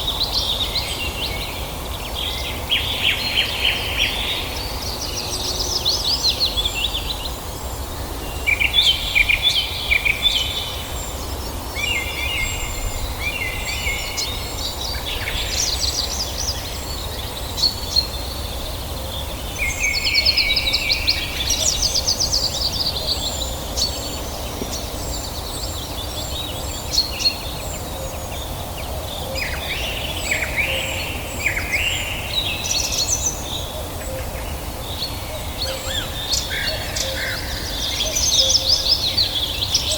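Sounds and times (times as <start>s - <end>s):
wild birds singing and chirping: 0.0s - 39.9s.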